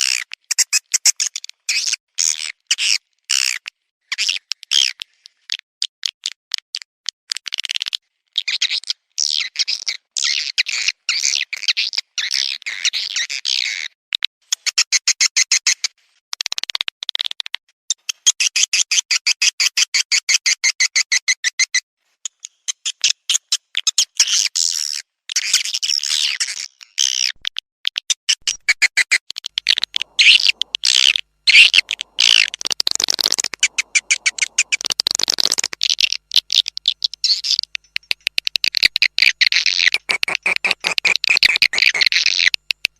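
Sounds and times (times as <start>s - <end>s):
rapid clicking pulses: 29.4s - 42.9s
swiftlets chirping and twittering: 29.7s - 37.7s, 38.8s - 42.6s.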